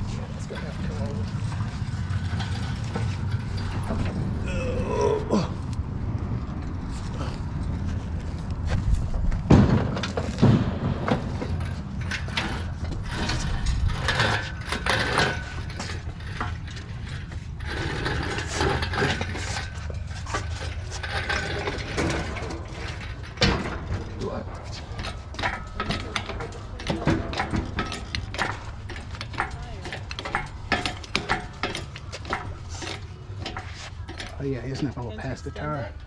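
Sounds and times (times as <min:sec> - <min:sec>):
metal clicking and rattling: 0:09.4 - 0:36.0.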